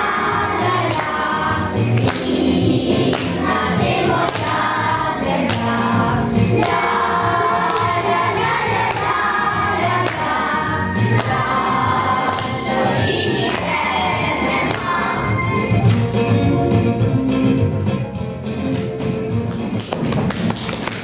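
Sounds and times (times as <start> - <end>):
choir singing: 0.0 - 15.8
backing music with steady beat: 0.0 - 21.0.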